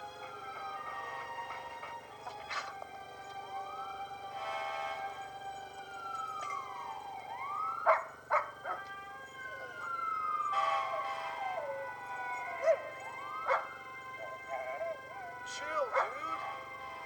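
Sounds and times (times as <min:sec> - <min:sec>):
fire engine siren wailing: 0:00.0 - 0:17.0
dog barking: 0:07.8 - 0:08.8, 0:12.6 - 0:12.9, 0:13.5 - 0:13.7, 0:15.8 - 0:16.3
dog howling: 0:07.8 - 0:16.4.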